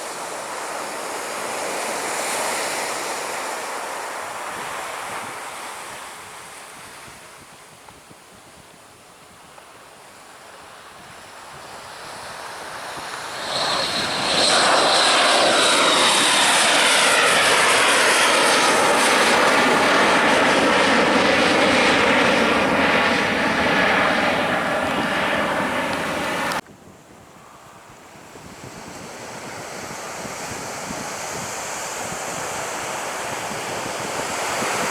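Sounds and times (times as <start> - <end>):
jet airliner passing overhead: 0.0 - 6.0, 11.1 - 26.6, 27.3 - 34.9
high engine whine: 12.6 - 26.6.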